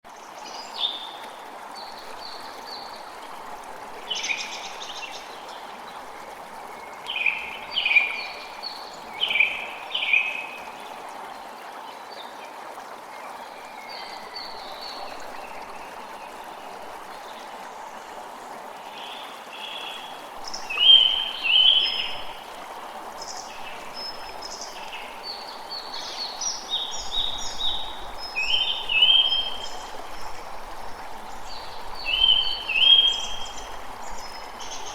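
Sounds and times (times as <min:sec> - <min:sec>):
creek water running: 0:00.0 - 0:34.9
songbirds calling: 0:06.6 - 0:11.0, 0:18.9 - 0:34.9.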